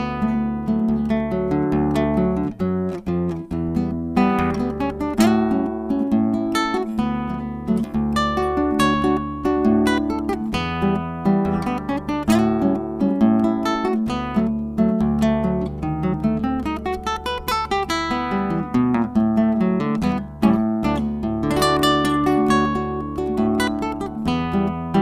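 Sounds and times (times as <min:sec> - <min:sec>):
acoustic guitar playing: 0:00.0 - 0:25.0.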